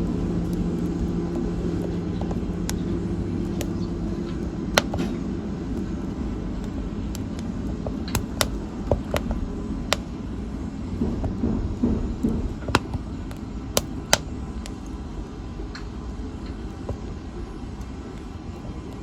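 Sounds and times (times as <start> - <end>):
burning wood popping and snapping: 0.0 - 19.0.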